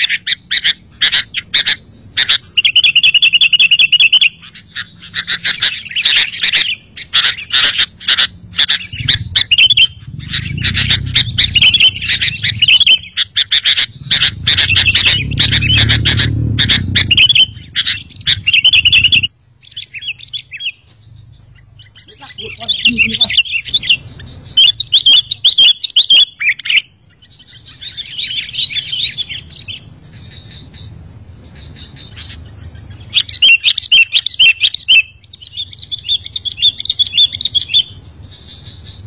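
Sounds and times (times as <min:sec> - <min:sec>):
birds singing and calling: 0:00.0 - 0:39.0
fast bird trill: 0:00.0 - 0:39.0
low rumble: 0:08.4 - 0:19.4.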